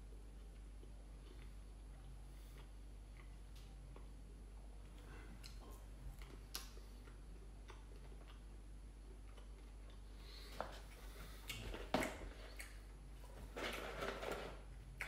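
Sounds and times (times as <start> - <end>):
low steady hum: 0.0 - 15.0
mouth clicks of chewing: 5.4 - 8.6, 10.9 - 12.8.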